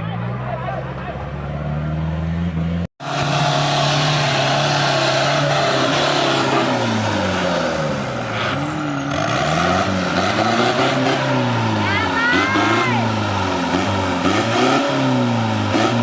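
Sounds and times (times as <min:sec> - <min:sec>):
off-road engines revving: 0:00.0 - 0:16.0.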